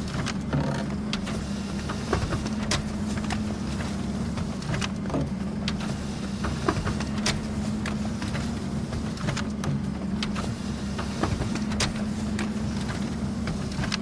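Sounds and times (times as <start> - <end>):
printer motor hum: 0.0 - 14.0
printer paper feed clicks: 0.0 - 14.0.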